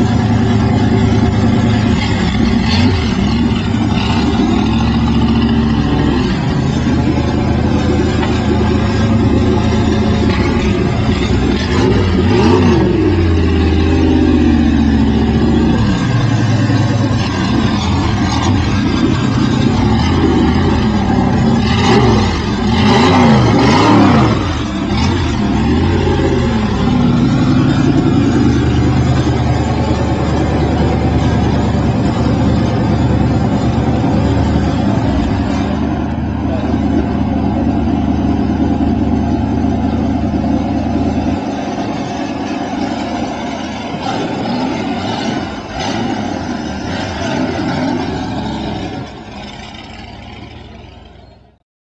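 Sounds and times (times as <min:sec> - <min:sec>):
race car engine revving: 0:00.0 - 0:51.6.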